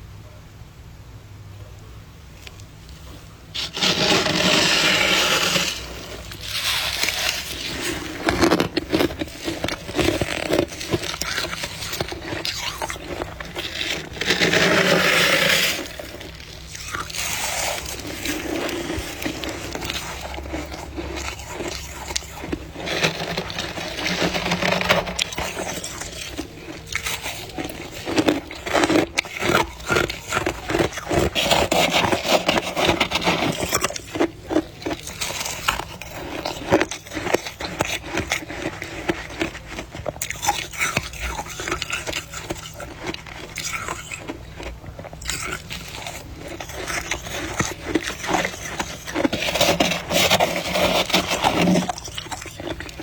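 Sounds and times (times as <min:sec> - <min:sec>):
frost crackling: 0:02.9 - 0:53.0
frost being scraped: 0:03.0 - 0:53.0.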